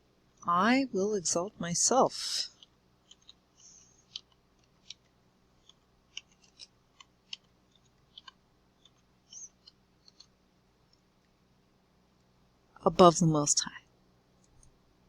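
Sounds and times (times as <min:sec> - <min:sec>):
faint small clicks and ticks: 0:02.5 - 0:11.4.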